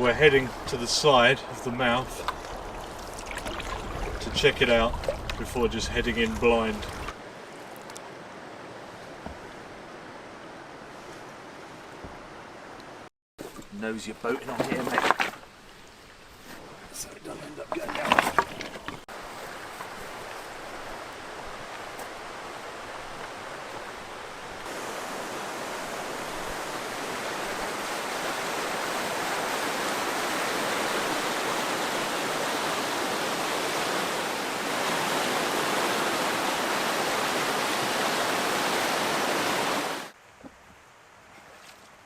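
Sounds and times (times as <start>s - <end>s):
white water rushing: 0.0s - 7.5s, 16.9s - 40.2s.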